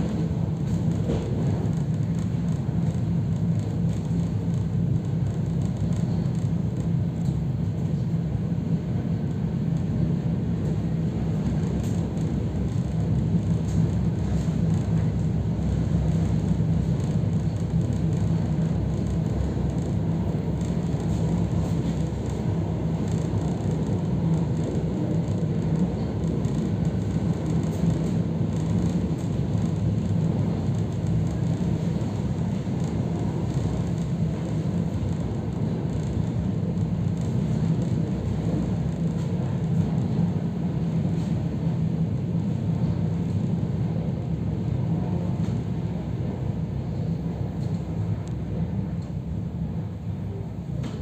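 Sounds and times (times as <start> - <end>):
electric train running rumble: 0.0 - 51.0.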